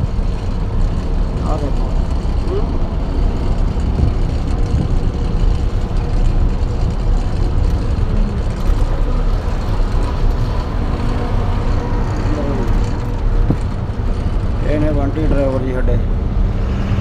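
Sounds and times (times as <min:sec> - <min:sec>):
road noise: 0:00.0 - 0:17.0
truck engine drone: 0:00.0 - 0:17.0.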